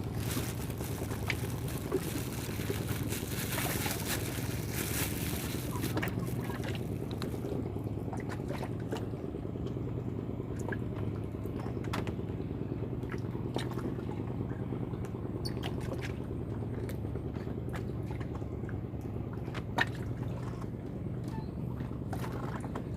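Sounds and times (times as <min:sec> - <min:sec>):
small ticks and splashes: 0:00.0 - 0:09.0
river water lapping: 0:00.0 - 0:22.9
steady low hum: 0:00.0 - 0:22.9.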